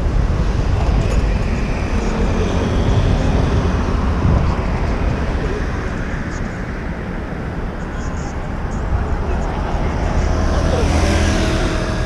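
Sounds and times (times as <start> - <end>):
wind on microphone: 0.0 - 7.7
city street traffic: 0.0 - 12.0.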